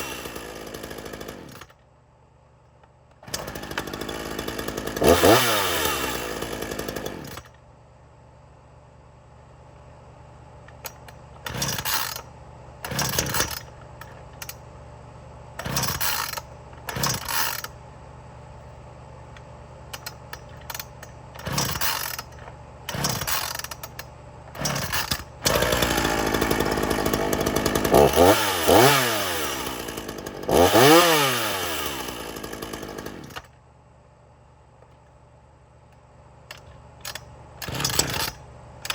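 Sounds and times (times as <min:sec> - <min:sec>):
chainsaw idling and revving: 0:00.0 - 0:01.8, 0:03.2 - 0:07.5, 0:11.4 - 0:13.7, 0:15.6 - 0:17.8, 0:20.7 - 0:33.6, 0:37.1 - 0:38.9.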